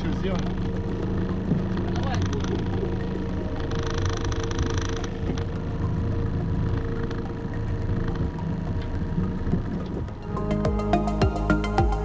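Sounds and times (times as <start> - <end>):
outboard motor idling: 0.0 - 12.0.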